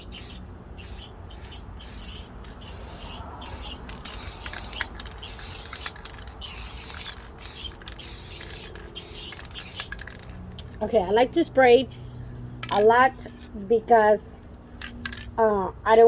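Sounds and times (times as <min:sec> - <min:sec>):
rhythmic high chirping: 0:00.0 - 0:10.7
aerosol can spraying: 0:00.0 - 0:10.8.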